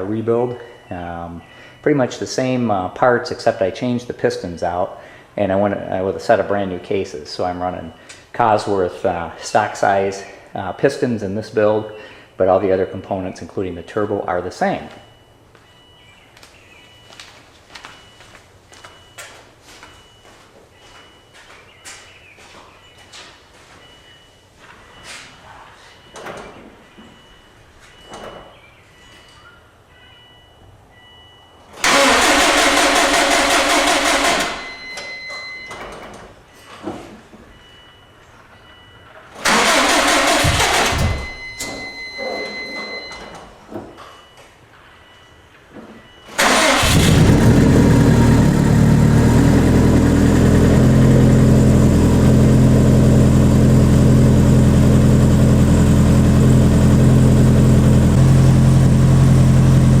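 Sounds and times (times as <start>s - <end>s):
car engine cranking on starter: 31.8s - 34.7s, 39.4s - 41.7s, 46.3s - 60.0s
car engine idling: 46.4s - 60.0s.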